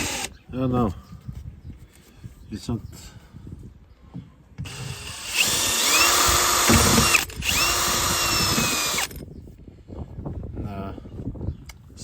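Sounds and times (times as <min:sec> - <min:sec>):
electric drill whining: 0:00.0 - 0:00.3, 0:04.7 - 0:09.2.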